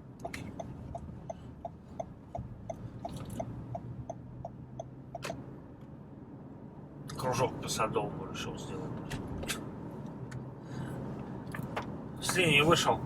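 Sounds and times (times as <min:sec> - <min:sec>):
turn signal ticking: 0:00.0 - 0:06.0
car cabin hum: 0:00.0 - 0:13.0.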